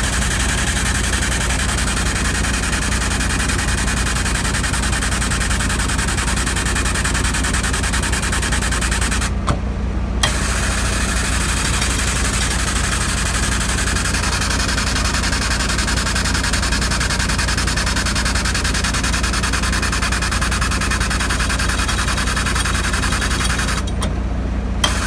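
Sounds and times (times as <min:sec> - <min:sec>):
click: 0:10.2 - 0:10.4.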